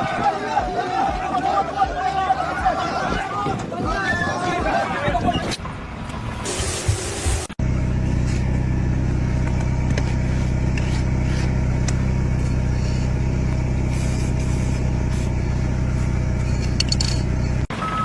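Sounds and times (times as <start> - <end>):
large engine humming: 5.6 - 18.0.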